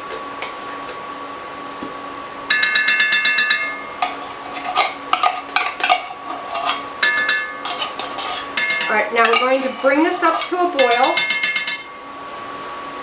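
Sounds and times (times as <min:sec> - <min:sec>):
faint hum: 0:00.0 - 0:13.0
metal spoon scraping a can: 0:04.0 - 0:11.3.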